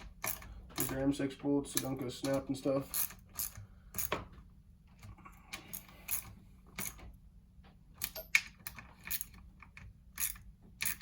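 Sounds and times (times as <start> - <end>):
hand tools clicking on metal bolts: 0.0 - 4.2.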